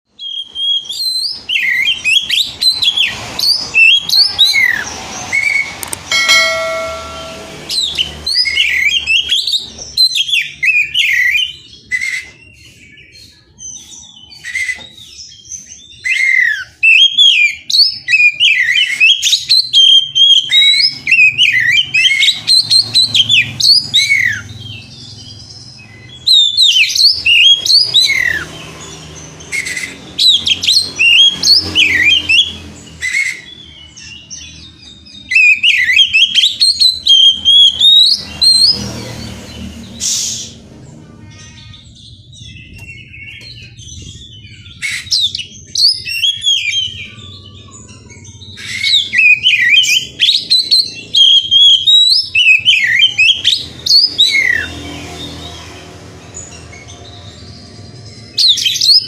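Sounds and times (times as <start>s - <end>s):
steady tone with overtones: 6.1s - 7.8s.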